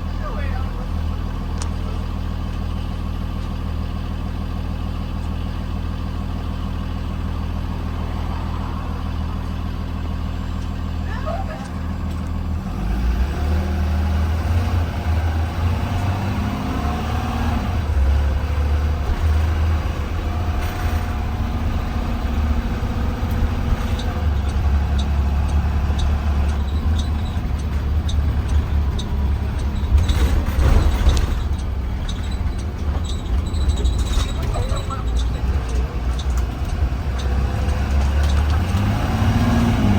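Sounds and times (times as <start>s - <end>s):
bus engine drone: 0.0s - 39.9s
road rumble: 0.0s - 39.9s
rattles and clatter: 17.7s - 39.9s.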